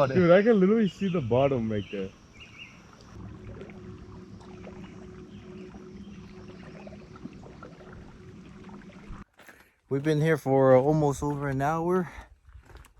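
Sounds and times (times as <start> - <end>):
motorboat engine humming: 1.0 - 9.5.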